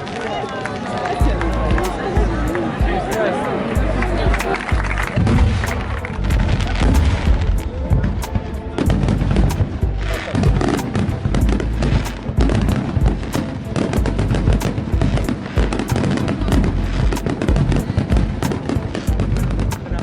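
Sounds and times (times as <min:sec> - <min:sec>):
low rumble: 0:01.2 - 0:03.0, 0:03.8 - 0:13.3, 0:16.4 - 0:18.4
fireworks bangs and crackles: 0:04.3 - 0:20.0.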